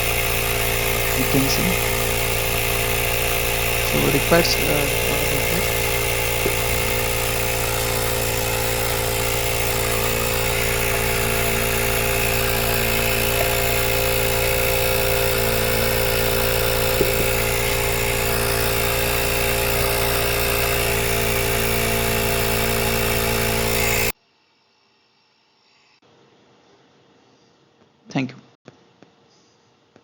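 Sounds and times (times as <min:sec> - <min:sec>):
tyre inflator compressor buzzing: 0:00.0 - 0:24.2.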